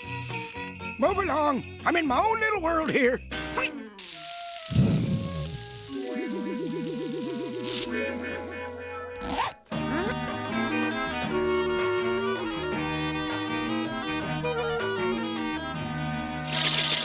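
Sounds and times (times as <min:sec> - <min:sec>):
cartoon music melody: 0:04.7 - 0:16.8.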